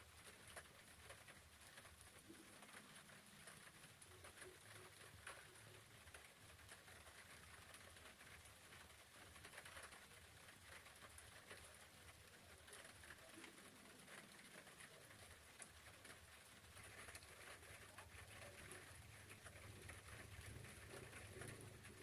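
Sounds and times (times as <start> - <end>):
raindrops pattering: 0.0 - 22.0.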